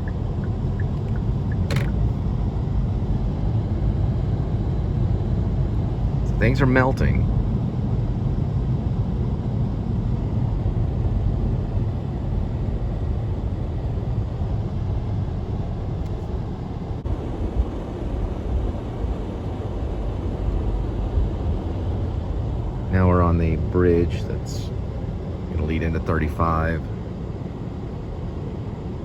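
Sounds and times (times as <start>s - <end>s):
car cabin road noise: 0.0s - 2.7s, 14.0s - 27.5s.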